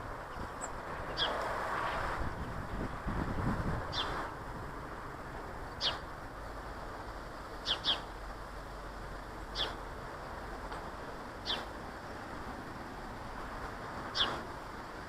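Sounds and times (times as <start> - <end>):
steady background hiss: 0.0 - 15.0
small birds calling: 0.2 - 1.4, 3.9 - 4.2, 5.7 - 6.1, 7.6 - 8.2, 9.4 - 9.9, 11.4 - 12.2, 14.0 - 14.5.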